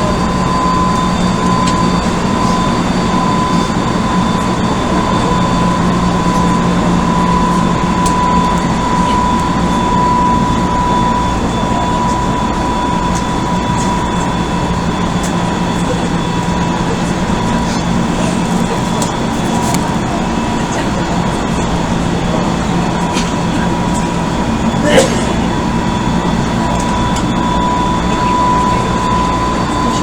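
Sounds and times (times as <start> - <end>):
electric whine: 0.0 - 30.0.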